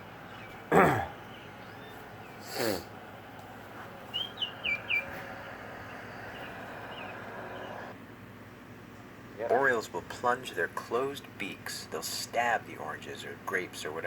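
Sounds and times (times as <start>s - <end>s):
bird whistling descending notes: 4.1s - 8.0s.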